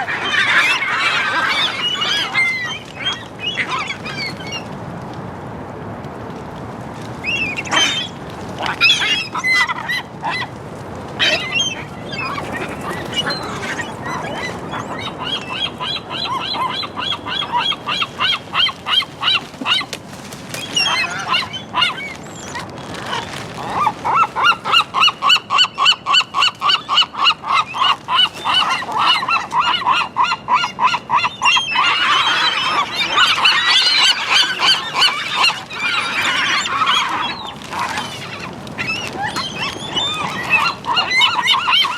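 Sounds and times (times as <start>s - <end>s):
gulls calling: 0.0s - 4.7s, 7.2s - 41.9s.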